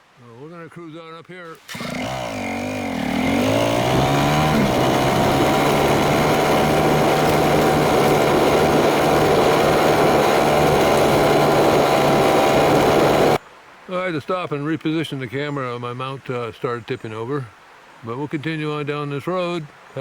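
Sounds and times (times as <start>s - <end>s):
dirt bike engine revving: 1.7s - 13.4s.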